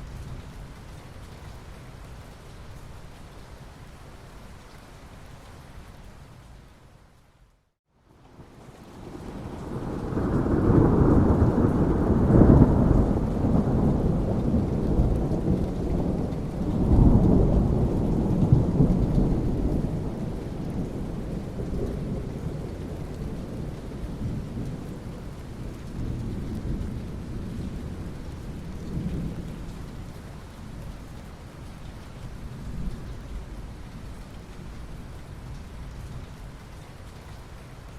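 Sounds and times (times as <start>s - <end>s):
steady rain: 0.0s - 37.9s
rolling thunder: 9.0s - 30.0s.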